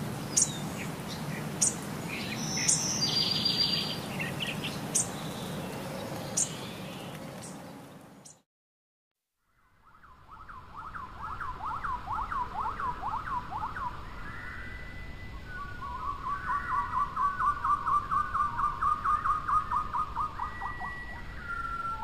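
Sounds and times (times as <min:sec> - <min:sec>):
flowing river water: 0:00.0 - 0:08.1
bird whistling downward notes: 0:01.6 - 0:05.1, 0:09.7 - 0:22.0.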